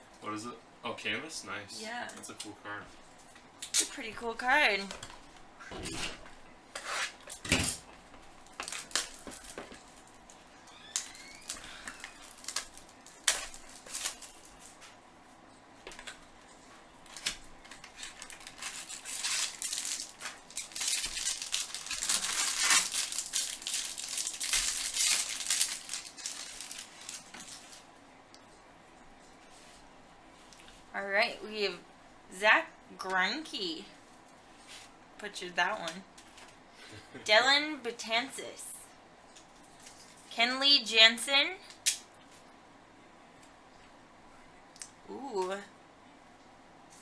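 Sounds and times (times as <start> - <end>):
packaging crinkling and rustling: 8.2 - 14.9, 17.0 - 27.9.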